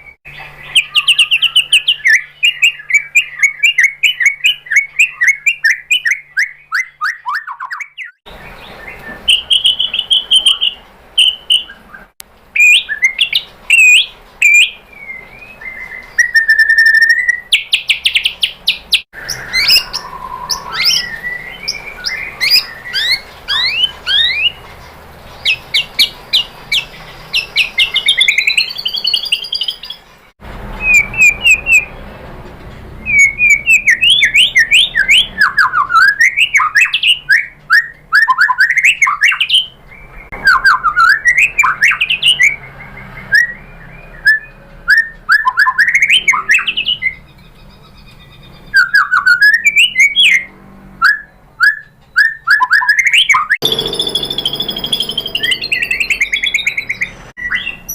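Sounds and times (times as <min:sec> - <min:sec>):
bird singing fast note strings: 0:53.6 - 0:57.9.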